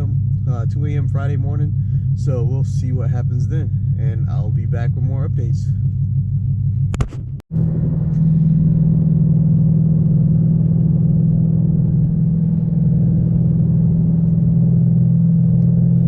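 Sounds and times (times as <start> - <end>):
car engine drone: 0.0 - 16.0
road noise: 7.5 - 16.0.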